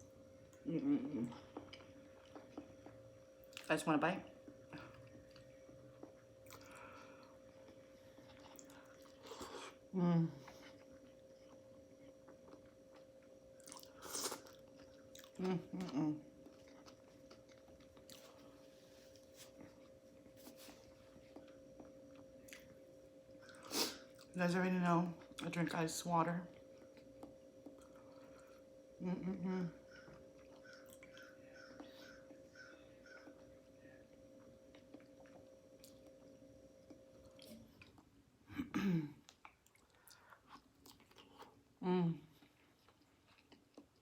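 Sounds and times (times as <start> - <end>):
faint steady hum: 0.0 - 44.0
throat humming sound: 0.6 - 1.8, 9.2 - 10.8, 29.0 - 33.6
chewing food: 1.3 - 3.8, 4.4 - 9.8, 10.4 - 24.4, 26.5 - 28.7, 29.8 - 38.2, 39.2 - 41.6, 42.3 - 44.0.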